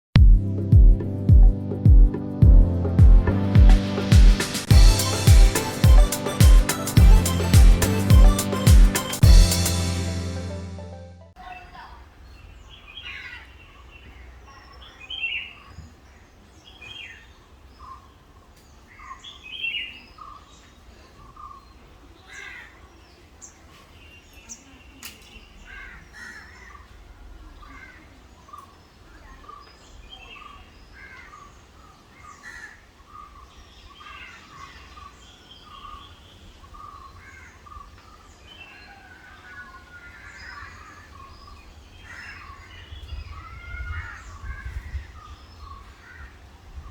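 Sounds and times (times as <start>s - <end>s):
low rumble: 0.2s - 6.0s
birds chirping and calling: 11.4s - 46.9s.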